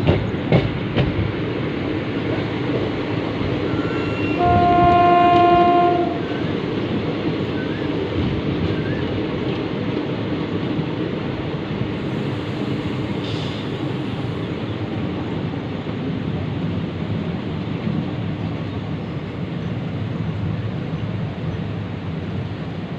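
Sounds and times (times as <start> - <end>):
train rumbling on track: 0.0 - 22.9
train horn: 3.7 - 6.4.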